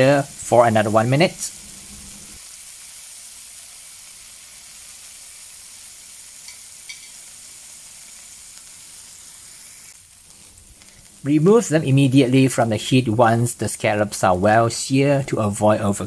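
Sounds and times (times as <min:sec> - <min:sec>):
scallops sizzling in oil: 0:00.0 - 0:11.7.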